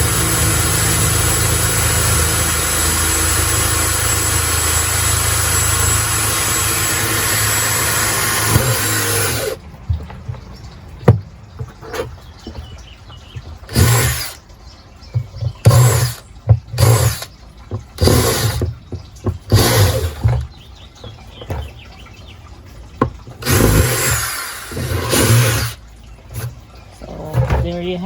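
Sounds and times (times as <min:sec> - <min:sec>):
power drill boring: 0:00.0 - 0:09.6, 0:13.7 - 0:14.4, 0:15.6 - 0:16.2, 0:16.8 - 0:17.3, 0:18.0 - 0:18.7, 0:19.5 - 0:20.4, 0:23.4 - 0:25.8.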